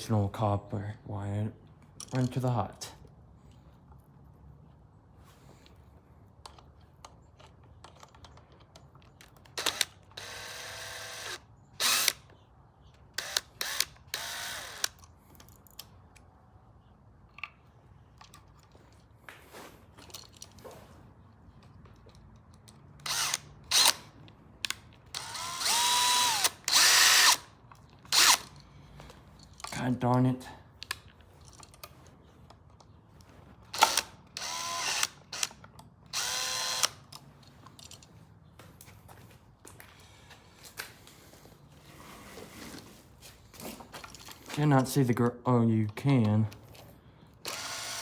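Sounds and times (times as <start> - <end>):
power drill whirring: 9.6 - 12.3, 13.2 - 15.0, 23.0 - 24.1, 25.1 - 27.5, 28.1 - 28.5, 33.7 - 37.0, 47.4 - 48.0.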